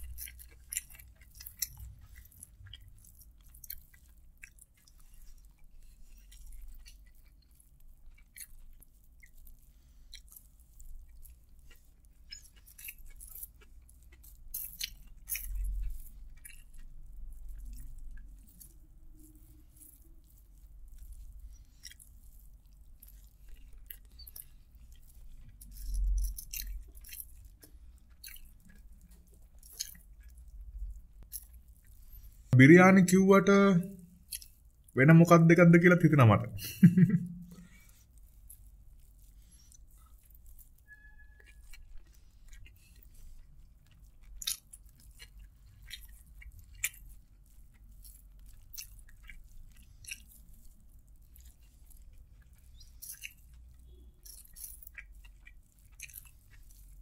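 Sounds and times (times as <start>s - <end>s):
chewing and mouth smacks: 0.0s - 32.6s, 33.8s - 35.0s, 36.4s - 57.0s.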